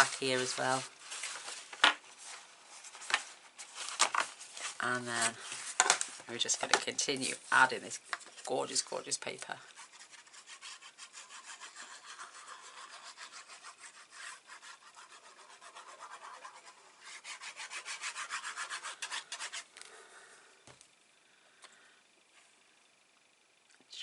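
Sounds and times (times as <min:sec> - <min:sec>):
paper rubbing against card: 0:00.0 - 0:05.8, 0:09.6 - 0:19.7.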